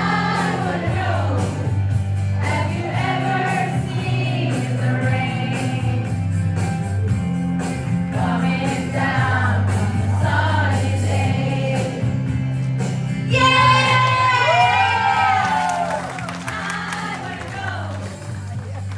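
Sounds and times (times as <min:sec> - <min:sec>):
group of voices singing: 0:00.0 - 0:06.3, 0:08.1 - 0:12.5, 0:16.3 - 0:18.0
instrumental accompaniment with bass: 0:00.0 - 0:18.9.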